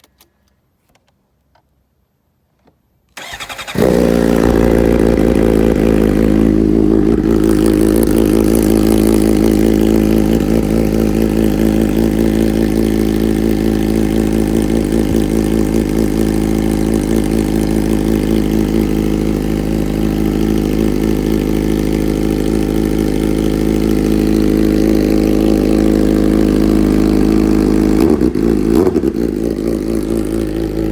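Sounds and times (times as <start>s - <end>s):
engine cranking: 3.2s - 4.7s
motorcycle engine idling: 3.2s - 30.9s.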